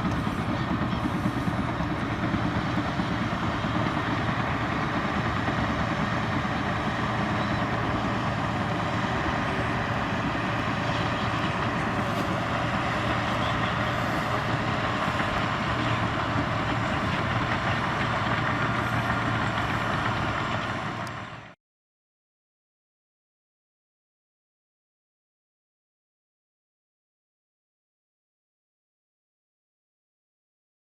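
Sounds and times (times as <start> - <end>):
steel tracks clattering: 0.0 - 21.5
bulldozer diesel engine running: 0.0 - 21.6.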